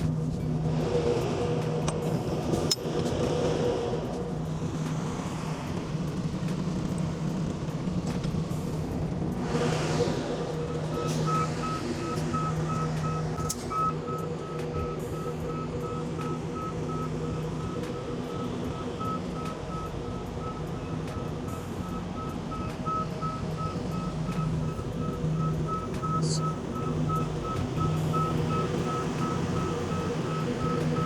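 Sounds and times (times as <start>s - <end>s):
truck engine running: 0.0s - 31.0s
reversing alarm beeping: 10.4s - 31.0s.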